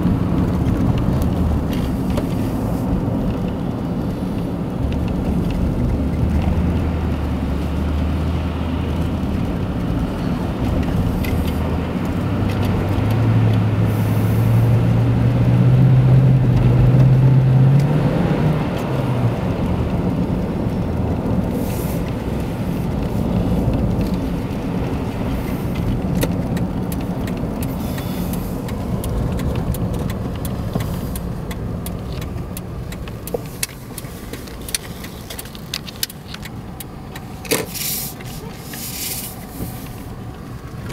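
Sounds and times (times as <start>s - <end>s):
car engine hum: 0.0s - 40.9s.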